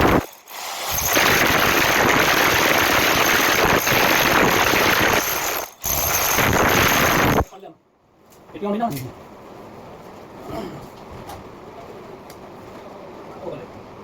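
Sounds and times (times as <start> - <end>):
drill grinding into wall: 0.0 - 7.6.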